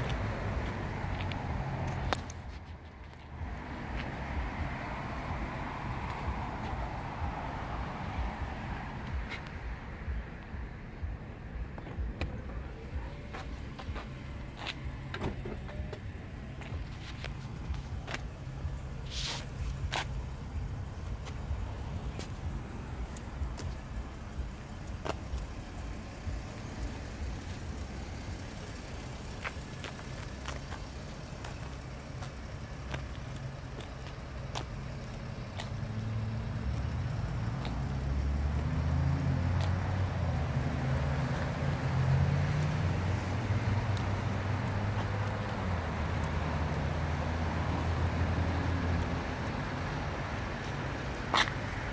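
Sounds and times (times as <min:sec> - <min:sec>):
car engine idling: 0:00.0 - 0:51.9.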